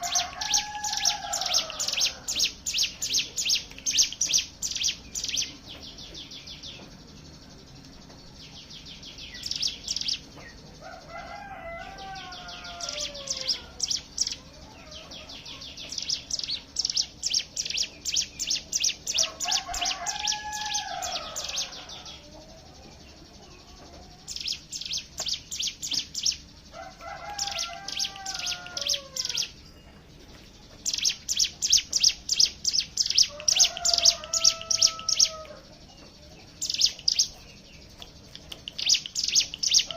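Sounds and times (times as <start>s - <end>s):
bird call rising and falling: 0.0s - 6.9s, 9.1s - 22.6s, 24.3s - 29.6s, 30.8s - 35.6s
birds singing rapid rattling trills: 0.0s - 39.9s.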